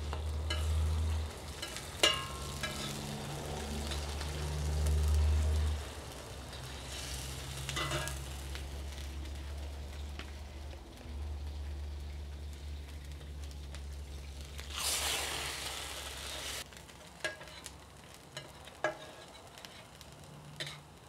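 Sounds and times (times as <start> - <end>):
tortillas sizzling in fat: 0.0 - 21.0
spatula scraping: 0.5 - 4.2, 17.2 - 17.7, 18.4 - 20.0, 20.6 - 20.9.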